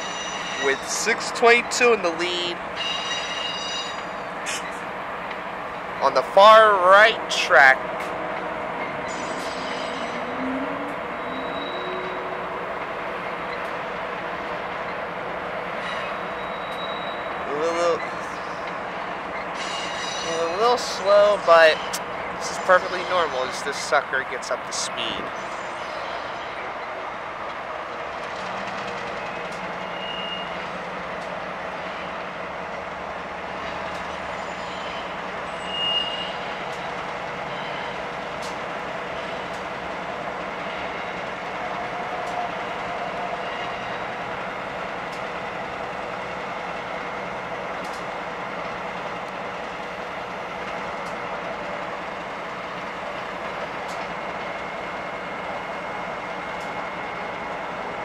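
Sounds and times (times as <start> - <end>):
distant rail yard and highway rumble: 0.0 - 58.0
electric locomotive pulling away: 0.0 - 58.0
short high beeps: 9.1 - 12.5.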